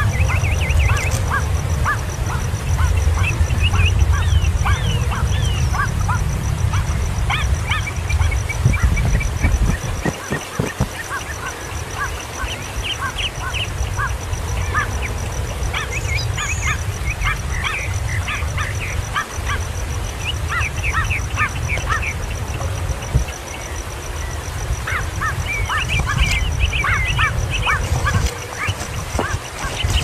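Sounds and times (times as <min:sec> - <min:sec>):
baby birds chirping: 0:25.6 - 0:30.0.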